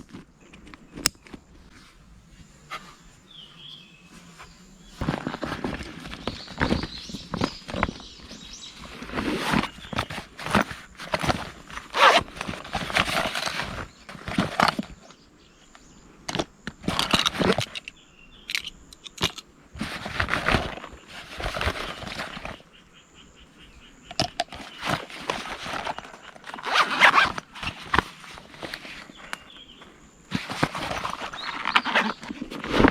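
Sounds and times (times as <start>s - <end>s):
gear rustling and scraping: 0.0s - 15.0s, 24.2s - 32.9s
sharp clicks: 0.6s - 1.4s.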